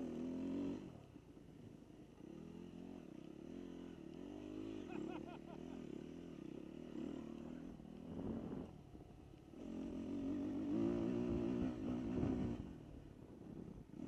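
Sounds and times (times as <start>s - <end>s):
dirt bike engine revving: 2.2s - 8.7s, 9.5s - 12.9s.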